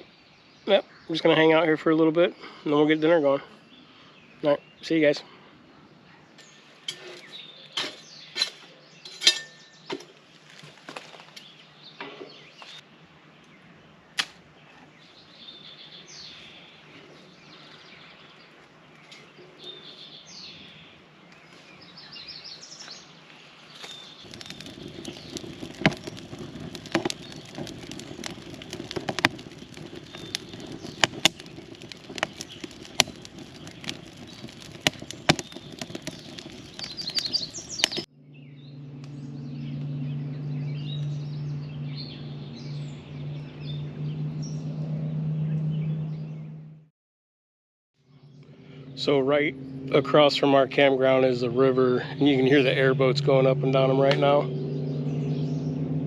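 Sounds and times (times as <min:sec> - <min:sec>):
birds chirping: 0:00.0 - 0:46.6, 0:48.1 - 0:56.0
steady low noise: 0:48.3 - 0:56.0.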